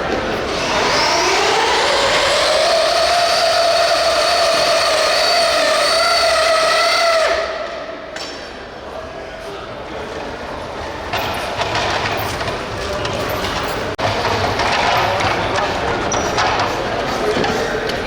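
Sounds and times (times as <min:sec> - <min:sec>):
rc vehicle motor whining: 0:00.3 - 0:07.5.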